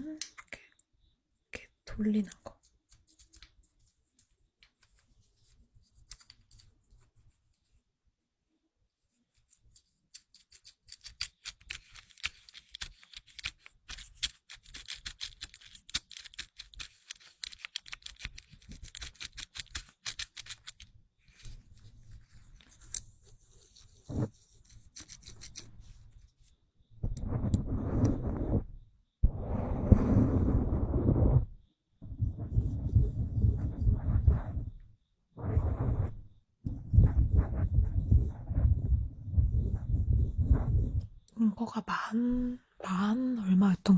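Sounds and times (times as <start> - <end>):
small plastic clicks: 9.5 - 20.9.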